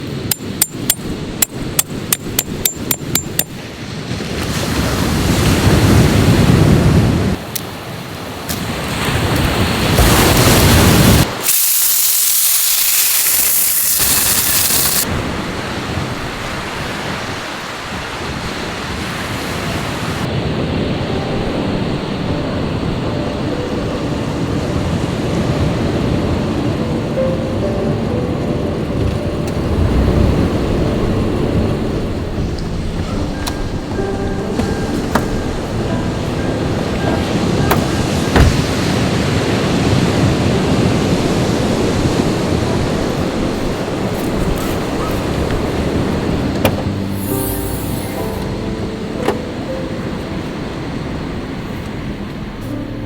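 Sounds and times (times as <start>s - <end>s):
waves washing in: 3.4s - 53.0s
rapid sharp clicks: 13.0s - 15.1s.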